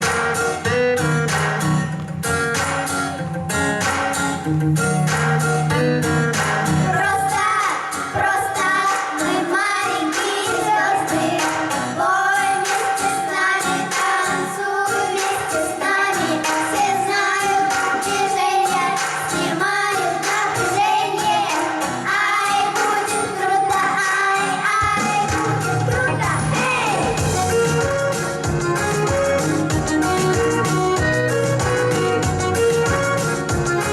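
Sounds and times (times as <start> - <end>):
instrumental accompaniment with beat: 0.0 - 33.9
group singing pop song: 5.0 - 27.4.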